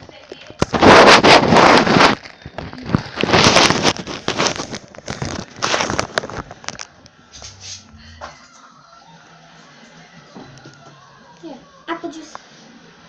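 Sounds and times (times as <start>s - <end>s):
rustling and crinkling handling: 0.0s - 8.5s.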